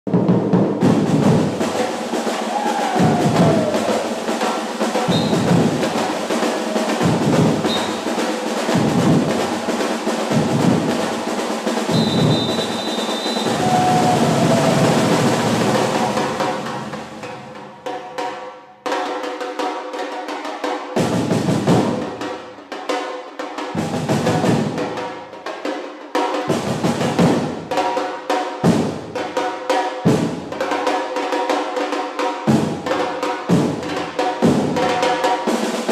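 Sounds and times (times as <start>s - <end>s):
drum-led music: 0.1s - 18.3s.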